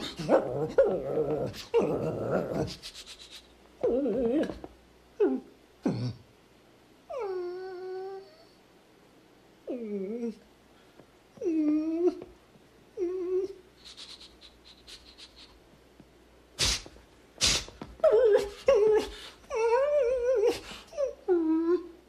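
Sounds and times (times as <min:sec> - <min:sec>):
dog whimpering and whining: 0:00.0 - 0:02.8, 0:03.8 - 0:06.1, 0:07.1 - 0:08.6, 0:09.6 - 0:10.4, 0:11.4 - 0:12.3, 0:12.9 - 0:13.6, 0:18.0 - 0:22.0.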